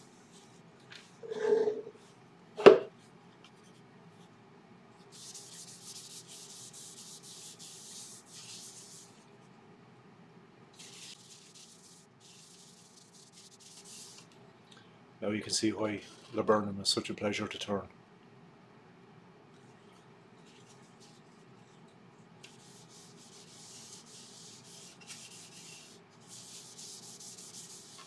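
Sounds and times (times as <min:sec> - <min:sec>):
hand rubbing wooden bowl: 0:01.2 - 0:02.0, 0:22.5 - 0:28.0.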